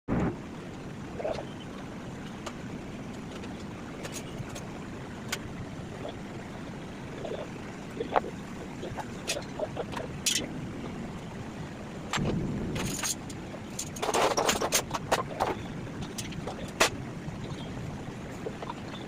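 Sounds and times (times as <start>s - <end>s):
steady low rumble: 0.1s - 19.0s.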